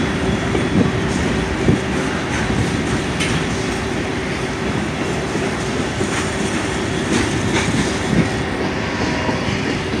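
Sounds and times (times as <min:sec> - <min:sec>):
train wheels rumbling on rail: 0:00.0 - 0:10.0
wheels clacking over rail joints: 0:05.0 - 0:08.7.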